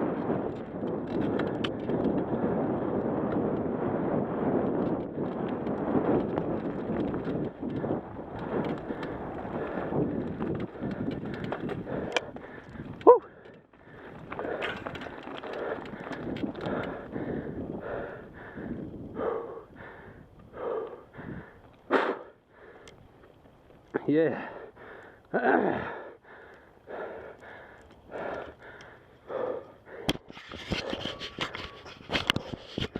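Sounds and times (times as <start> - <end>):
wind on microphone: 0.0 - 22.3, 29.3 - 32.9
mountain bike tyre noise: 0.0 - 32.9
bike rattles and knocks: 0.1 - 3.7, 4.4 - 18.1, 30.0 - 32.9
person breathing hard: 7.8 - 23.1, 24.3 - 32.9.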